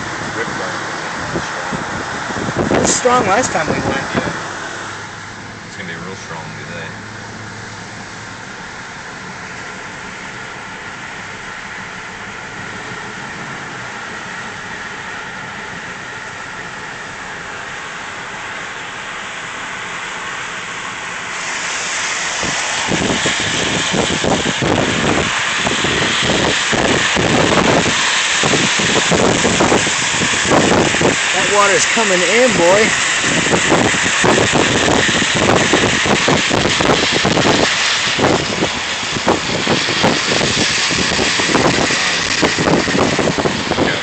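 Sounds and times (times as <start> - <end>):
car engine and road noise: 0.0 - 44.0
rushing hiss of storm: 0.0 - 44.0
wind buffeting microphone: 0.1 - 4.6, 22.3 - 44.0.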